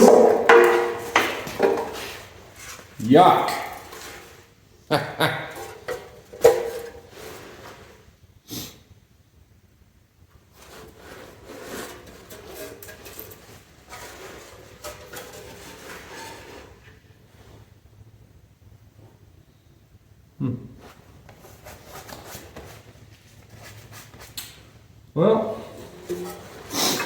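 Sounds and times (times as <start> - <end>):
metallic knock: 0.0 - 2.0
scraping and shuffling of engine parts: 0.0 - 4.6, 5.5 - 8.2, 10.4 - 17.8, 20.8 - 24.9, 25.6 - 27.0.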